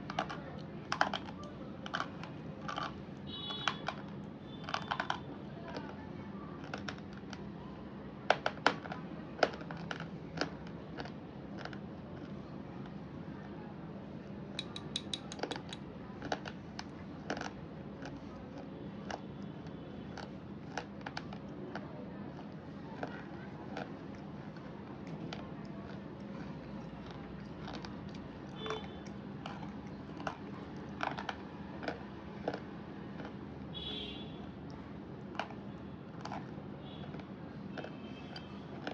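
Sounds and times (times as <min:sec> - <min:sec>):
crisp clicks: 0:14.6 - 0:18.2.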